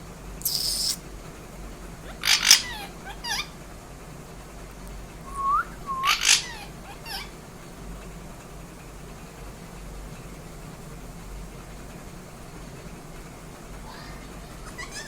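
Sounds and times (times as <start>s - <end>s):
falling chirps: 0.4s - 1.0s
parrot squawks: 0.4s - 1.0s, 2.1s - 3.6s, 6.0s - 7.3s
short rising whistles: 0.4s - 1.0s, 5.3s - 6.2s.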